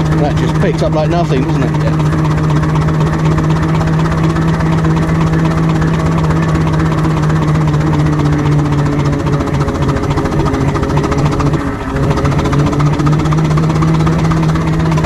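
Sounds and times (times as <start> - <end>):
steam wagon engine beat: 0.0 - 15.0.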